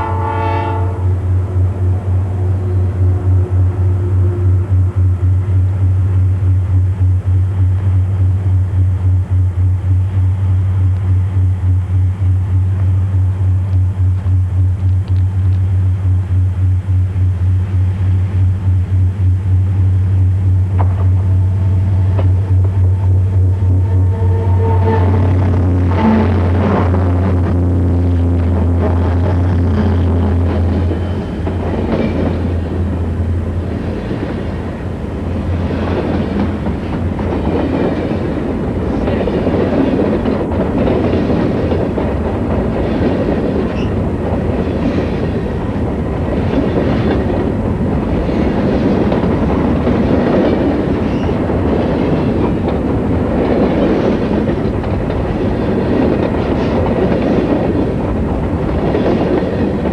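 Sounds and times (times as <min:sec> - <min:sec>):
low diesel drone: 0:00.0 - 0:37.4
train rumble: 0:00.0 - 0:59.9
freight train wheels clicking: 0:02.9 - 0:59.9.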